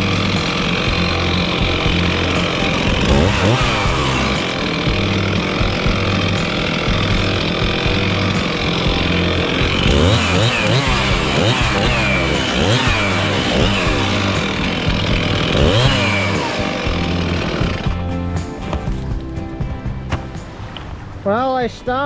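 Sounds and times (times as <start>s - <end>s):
chainsaw revving: 0.0s - 18.0s.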